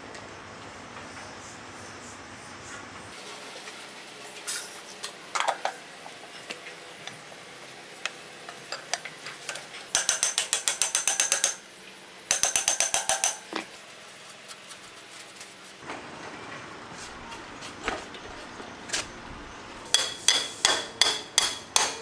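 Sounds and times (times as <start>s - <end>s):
tools tapping: 8.7s - 11.6s, 12.3s - 13.7s, 19.9s - 22.0s
ratchet wrench clicking: 10.0s - 11.6s, 12.3s - 13.4s.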